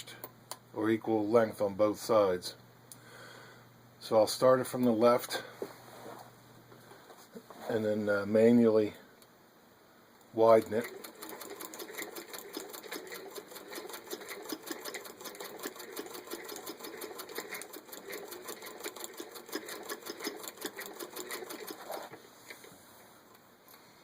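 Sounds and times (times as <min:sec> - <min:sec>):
sewing machine clatter: 0:10.4 - 0:22.6.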